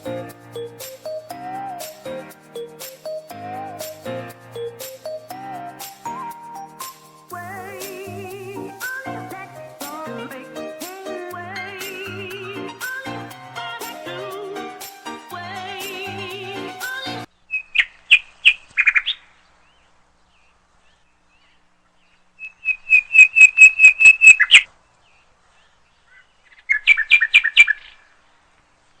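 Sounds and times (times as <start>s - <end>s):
background music: 0.0s - 17.3s
small bird chirping: 18.9s - 28.1s.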